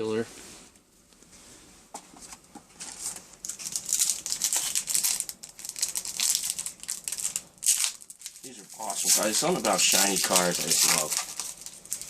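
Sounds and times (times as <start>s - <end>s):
wrapper crinkling and rustling: 2.8s - 12.0s.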